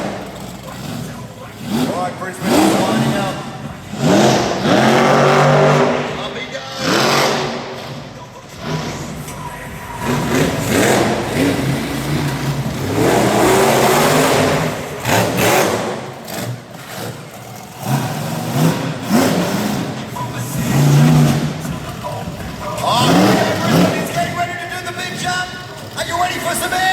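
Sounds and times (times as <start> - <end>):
loud rushing noise: 0.0 - 17.2
monster truck engine revving: 0.0 - 26.9.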